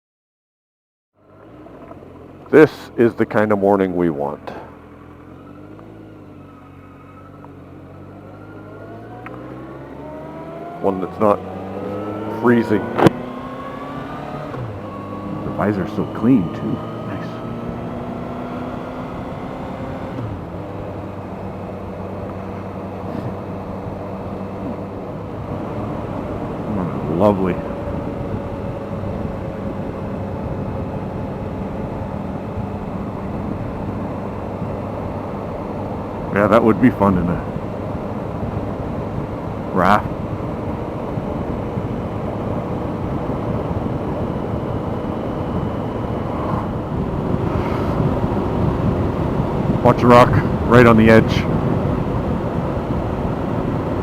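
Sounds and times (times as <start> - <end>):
motorcycle engine running: 1.2 - 54.0
wind and road noise: 1.2 - 54.0
wind noise rushing: 37.9 - 54.0.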